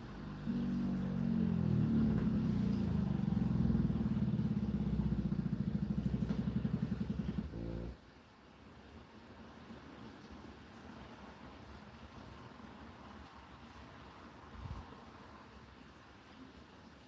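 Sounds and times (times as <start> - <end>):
dishwasher pump motor humming: 0.0 - 8.0.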